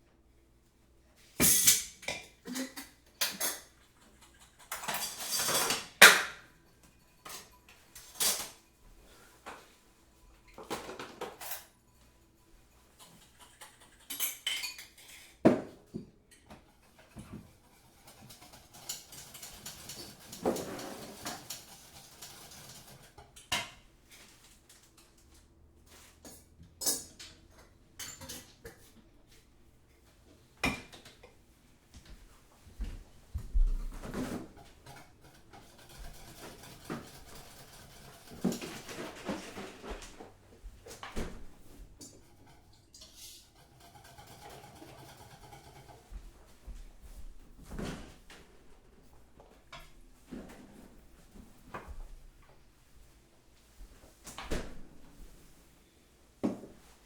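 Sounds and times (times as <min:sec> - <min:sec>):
crockery and cutlery clinking: 0:01.4 - 0:09.6, 0:10.3 - 0:23.8, 0:26.3 - 0:29.0
rustling and scraping: 0:16.6 - 0:23.2, 0:32.0 - 0:57.0.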